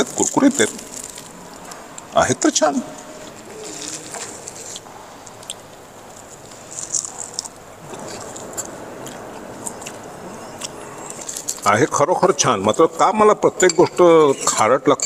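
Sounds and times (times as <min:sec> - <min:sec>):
man chewing: 0:00.6 - 0:02.2, 0:03.0 - 0:11.7.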